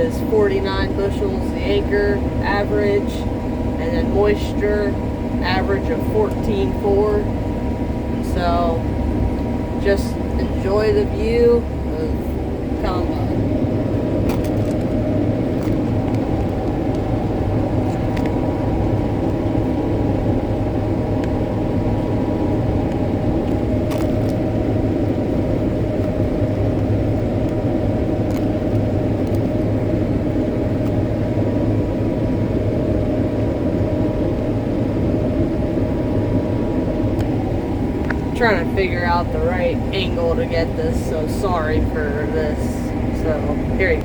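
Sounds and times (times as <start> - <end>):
combine harvester running: 0.0 - 44.0
faint high whine: 0.0 - 44.0.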